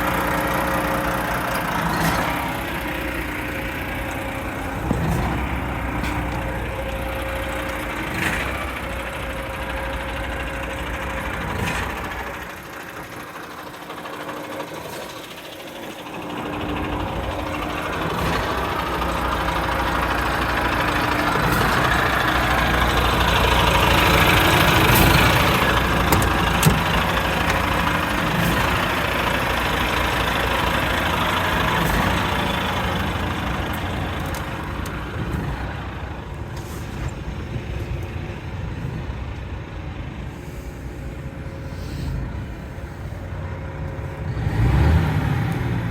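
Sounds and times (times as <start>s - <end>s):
diesel truck engine idling: 0.0s - 45.9s.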